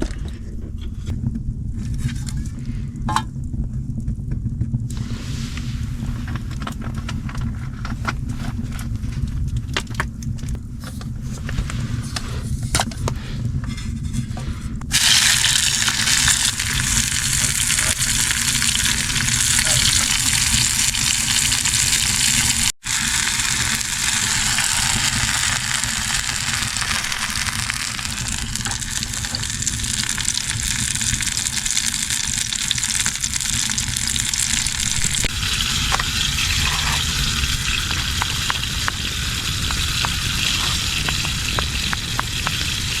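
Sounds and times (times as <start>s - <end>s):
food sizzling in a hot pan: 14.9s - 43.0s.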